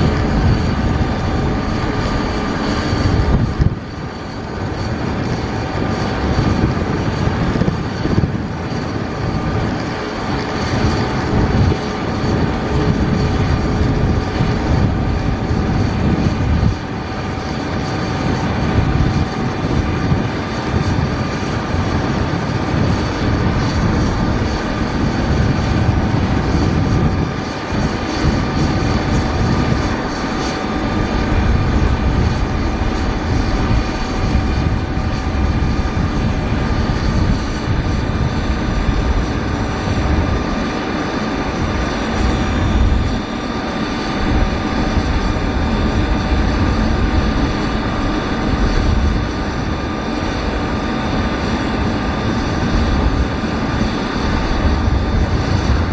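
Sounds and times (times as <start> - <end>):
jet engine high whine: 0.0 - 55.9
jet engines rumbling: 0.0 - 55.9.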